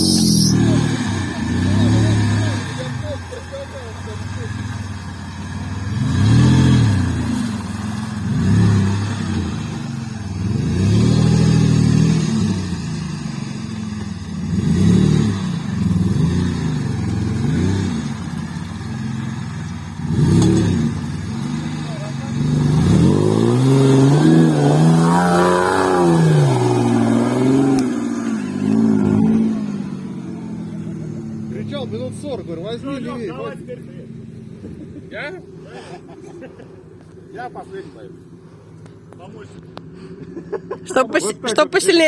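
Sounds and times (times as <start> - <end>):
engine revving hard: 0.0 - 2.9, 5.8 - 7.6, 8.2 - 9.8, 10.4 - 12.8, 14.4 - 18.2, 20.0 - 29.9.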